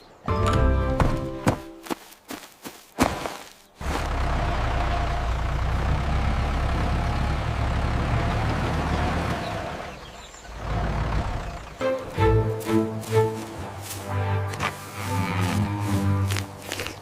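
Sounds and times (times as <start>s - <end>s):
low engine rumble: 3.7s - 17.0s.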